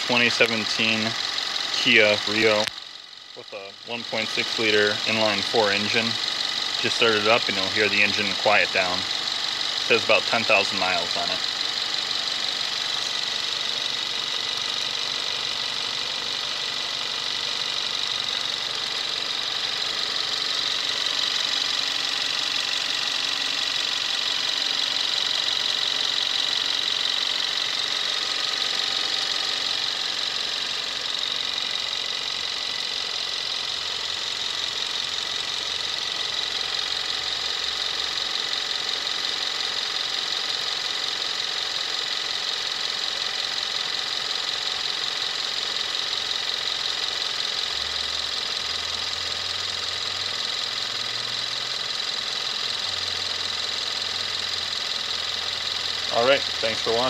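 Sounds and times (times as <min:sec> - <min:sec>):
car engine idling: 0:00.0 - 0:57.0
fast high-pitched fuel injector ticking: 0:00.0 - 0:57.0.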